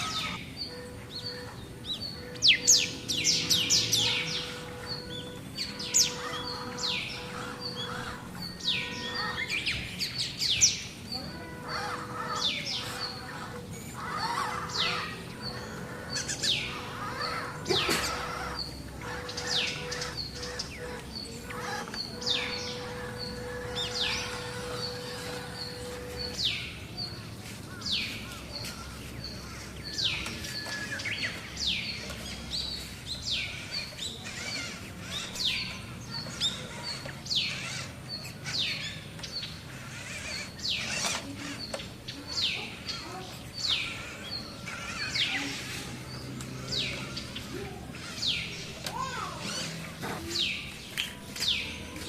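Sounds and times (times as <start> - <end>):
bird sharp downward-sweeping calls: 0.0 - 41.8.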